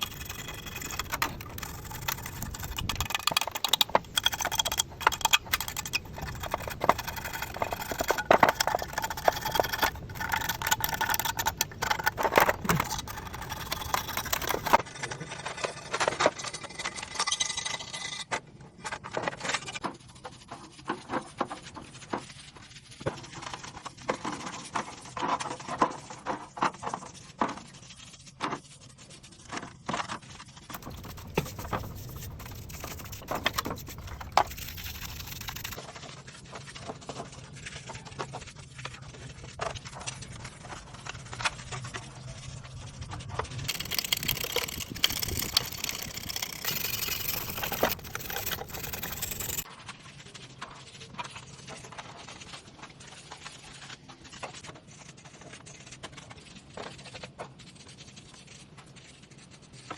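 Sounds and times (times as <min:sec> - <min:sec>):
hand tools and metal parts clinking: 0:00.0 - 0:14.8, 0:30.8 - 0:35.8, 0:43.7 - 0:49.7.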